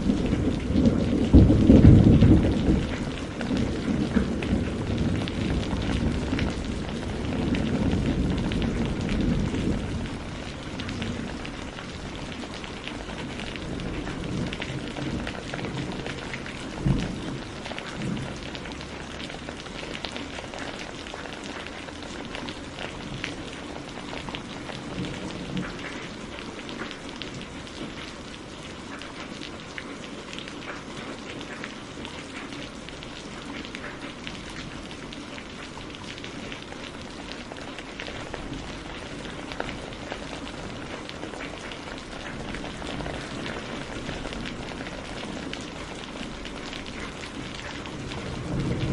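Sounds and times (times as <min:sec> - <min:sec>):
thunder rumble: 0:00.0 - 0:20.8, 0:37.0 - 0:48.9
rain pattering: 0:00.0 - 0:48.9.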